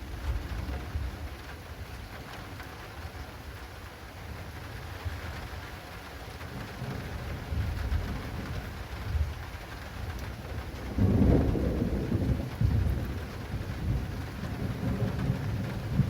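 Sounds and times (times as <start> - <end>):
rain pattering on an awning: 0.0 - 16.0
rolling thunder: 10.1 - 16.0.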